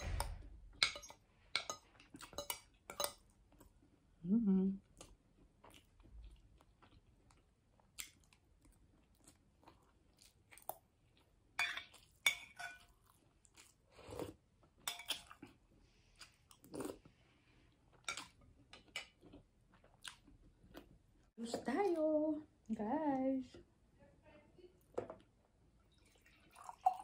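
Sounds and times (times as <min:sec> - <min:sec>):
person chewing food: 0:04.8 - 0:21.3.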